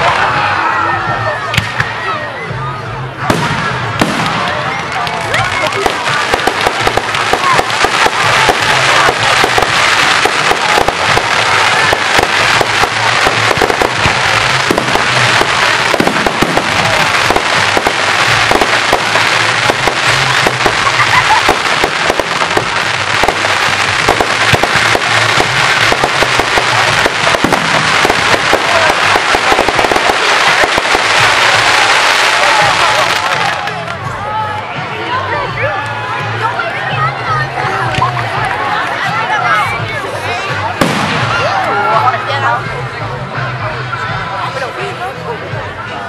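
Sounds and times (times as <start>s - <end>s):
dense firework crackling: 3.2s - 34.0s, 40.6s - 42.4s
firework shells bursting: 5.7s - 31.9s.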